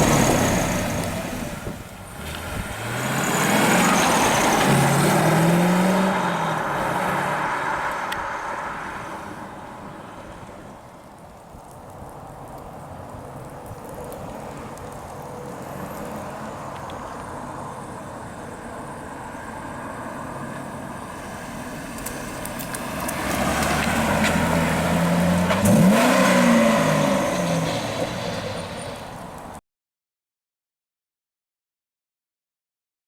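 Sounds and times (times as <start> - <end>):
car engine running and revving: 0.0 - 8.8, 20.5 - 29.6.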